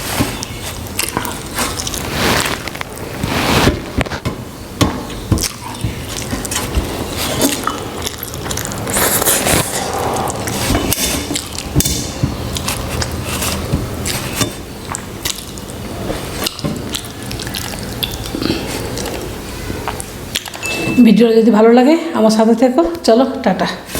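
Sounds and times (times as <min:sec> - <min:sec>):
wet squishing and smacking eating: 0:00.0 - 0:03.2, 0:05.1 - 0:20.7
chewing: 0:00.3 - 0:02.6, 0:05.4 - 0:20.7
mouth clicks: 0:16.4 - 0:20.6.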